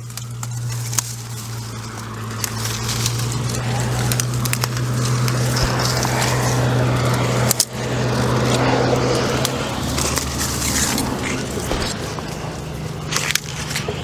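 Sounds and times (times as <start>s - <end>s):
chainsaw cutting brush: 0.0s - 14.0s.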